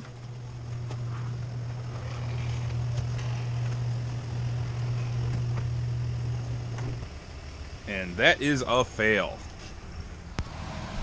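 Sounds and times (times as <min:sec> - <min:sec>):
garage door opener motor running: 0:00.0 - 0:08.4.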